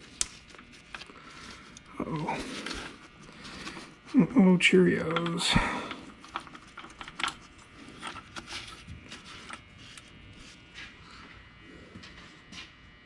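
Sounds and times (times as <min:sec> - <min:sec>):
metal parts clicking and knocking: 0:06.0 - 0:08.7.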